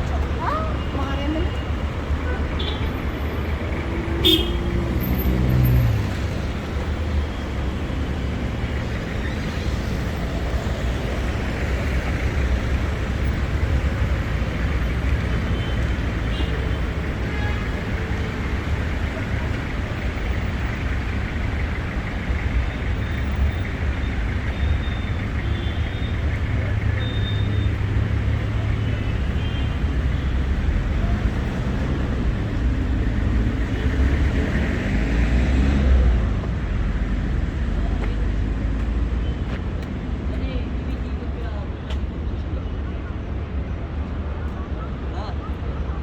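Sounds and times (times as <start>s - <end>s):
passing vehicles: 0.0s - 46.0s.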